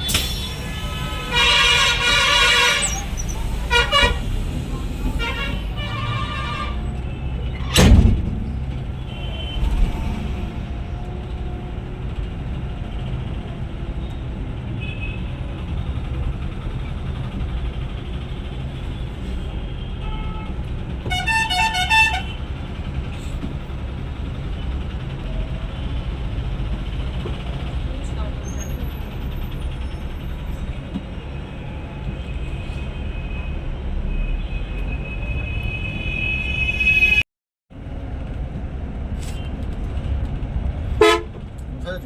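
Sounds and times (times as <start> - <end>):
bus engine and road rumble: 0.0 - 42.0
vehicle horn short toots: 0.1 - 4.3, 5.1 - 7.0, 21.1 - 22.4, 35.2 - 37.2, 41.0 - 41.4
loud sharp thump: 7.6 - 10.9.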